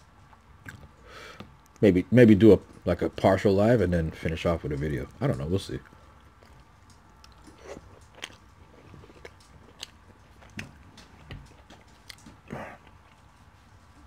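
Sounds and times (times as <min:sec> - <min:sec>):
close-miked chewing: 0:00.0 - 0:01.9, 0:04.1 - 0:14.0.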